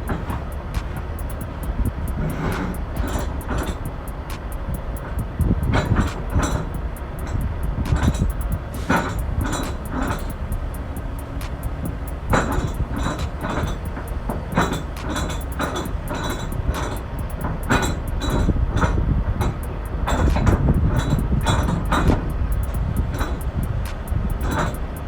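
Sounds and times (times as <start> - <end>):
heavy vehicle rumbling: 0.0 - 25.0
rattling metal clanks: 0.0 - 25.0.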